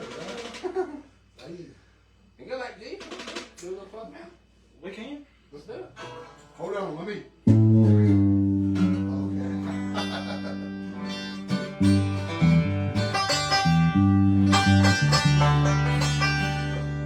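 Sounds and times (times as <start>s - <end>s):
acoustic guitar notes plucked: 7.5s - 17.0s.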